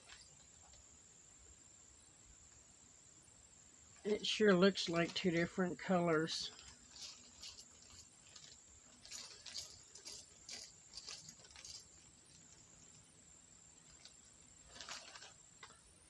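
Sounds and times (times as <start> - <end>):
small plastic pieces clicking: 6.6 - 12.1.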